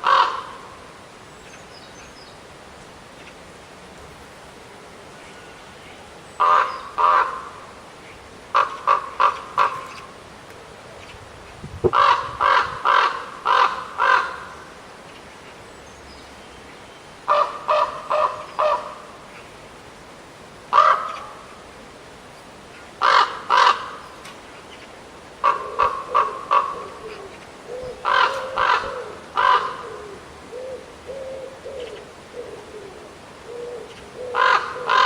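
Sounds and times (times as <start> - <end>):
raven cawing: 0.0 - 0.8, 6.4 - 7.7, 8.5 - 10.0, 11.9 - 14.7, 17.3 - 19.1, 20.7 - 21.5, 23.0 - 24.2, 25.4 - 35.0.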